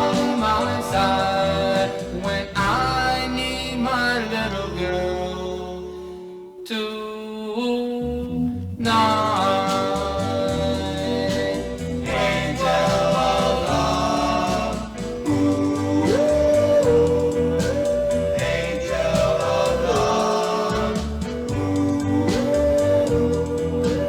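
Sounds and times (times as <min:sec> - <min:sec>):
band backing: 0:00.0 - 0:04.6, 0:08.8 - 0:24.0
vocal group singing harmonies: 0:00.0 - 0:24.0.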